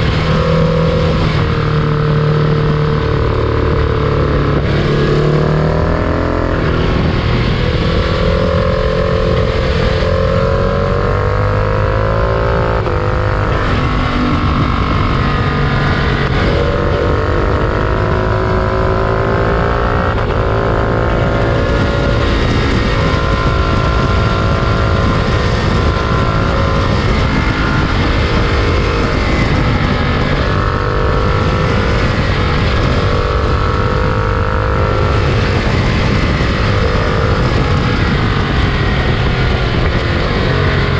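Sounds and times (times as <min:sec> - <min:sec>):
freight train rumbling: 0:00.0 - 0:08.6, 0:34.7 - 0:40.8.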